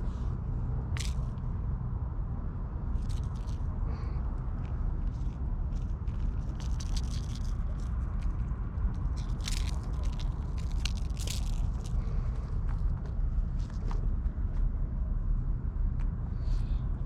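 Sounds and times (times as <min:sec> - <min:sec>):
steady low rumble: 0:00.0 - 0:17.0
cats scratching and biting toy: 0:00.8 - 0:01.4, 0:03.0 - 0:14.0.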